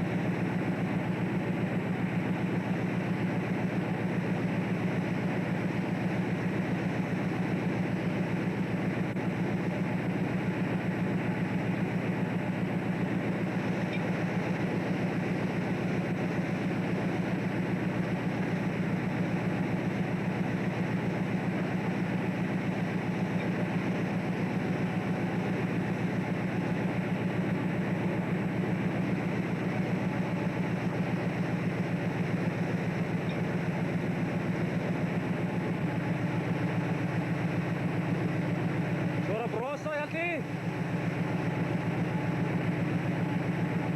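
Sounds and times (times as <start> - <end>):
boat diesel engine drone: 0.0 - 43.9.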